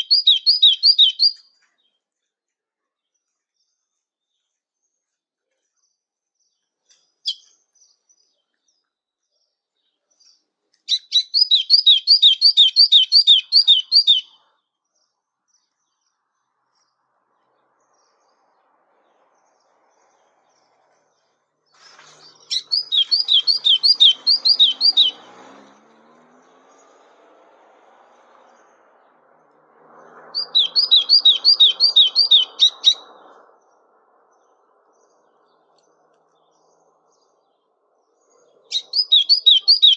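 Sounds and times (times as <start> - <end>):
songbird trilling: 0.0 - 1.4, 10.9 - 14.4, 21.9 - 25.3, 30.4 - 33.2, 38.6 - 39.9
bird chirp: 0.0 - 39.9.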